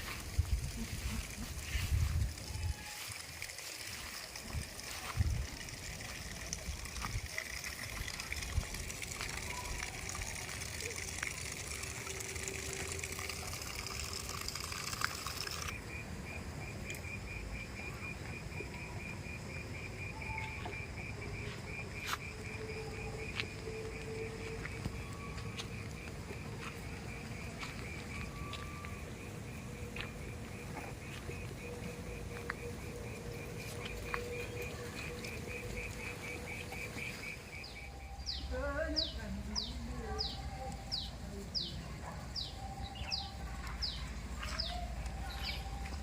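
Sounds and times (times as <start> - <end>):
water trickling: 0.0 - 15.8, 23.9 - 39.4
insect chirping: 0.0 - 46.0.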